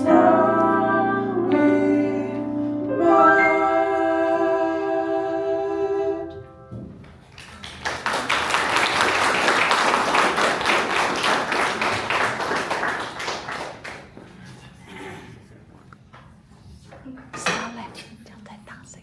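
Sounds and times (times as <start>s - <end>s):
audience clapping: 7.0s - 14.5s.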